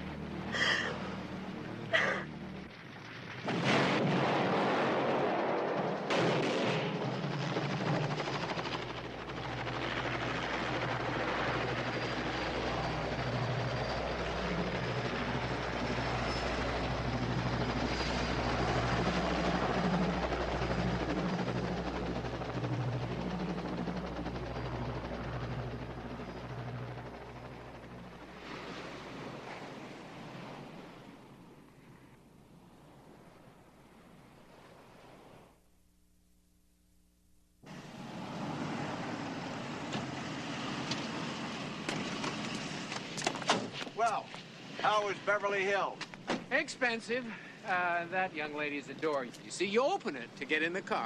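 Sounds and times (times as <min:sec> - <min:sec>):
helicopter rotor and engine: 0:00.0 - 0:03.5, 0:04.6 - 0:31.8, 0:37.6 - 0:51.0.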